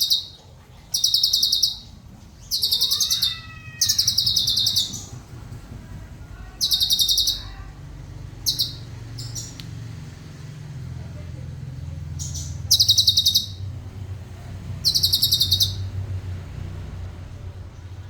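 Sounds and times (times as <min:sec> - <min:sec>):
bird rattling trill: 0:00.0 - 0:05.6, 0:06.5 - 0:07.7, 0:08.3 - 0:09.6, 0:12.2 - 0:13.7, 0:14.8 - 0:16.0.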